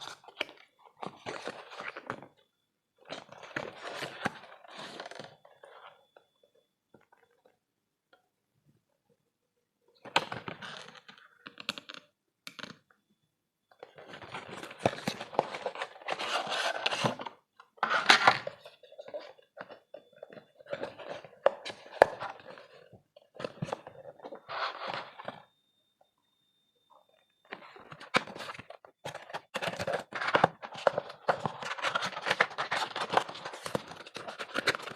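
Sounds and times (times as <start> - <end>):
packaging rustling and crinkling: 14.0 - 25.5, 27.5 - 34.9.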